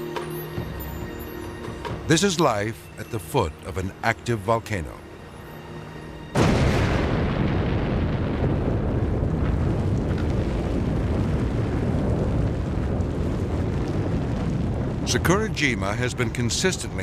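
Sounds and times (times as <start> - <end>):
volcano eruption blast: 6.3 - 17.0
deep rumble of eruption: 6.4 - 17.0.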